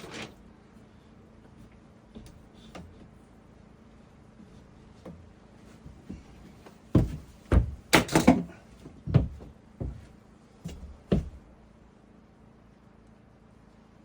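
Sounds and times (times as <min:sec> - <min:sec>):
knocks and thuds: 0:06.9 - 0:10.1, 0:10.7 - 0:11.5.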